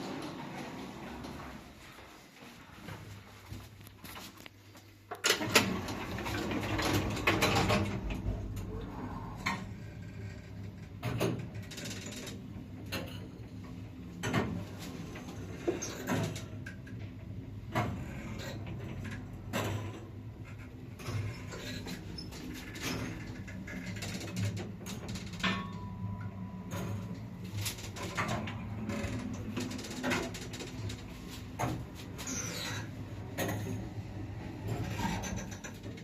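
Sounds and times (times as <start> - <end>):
lift electric hum: 0.0 - 4.5, 5.2 - 36.0.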